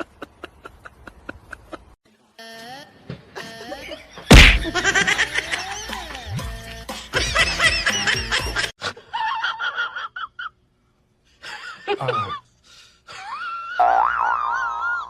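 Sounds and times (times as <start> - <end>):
high wavering laughter: 0.0 - 2.0, 3.4 - 6.1, 7.1 - 10.6, 11.4 - 12.5, 13.1 - 15.0.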